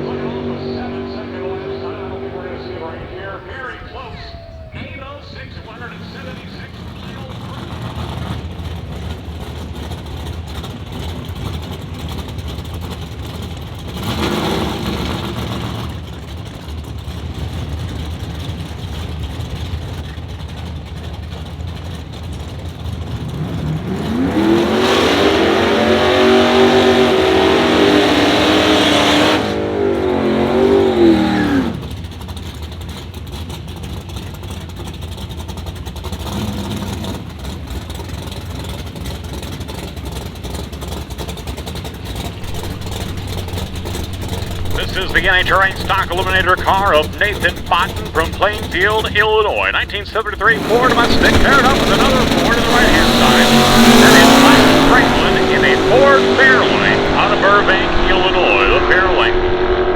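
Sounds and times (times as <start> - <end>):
car engine revving: 0.0 - 8.8, 12.8 - 16.1, 23.2 - 32.0, 42.1 - 59.9
car engines rumbling: 0.0 - 59.9
high-revving engine run: 6.8 - 19.6, 22.8 - 40.3, 41.8 - 49.6, 50.4 - 59.9.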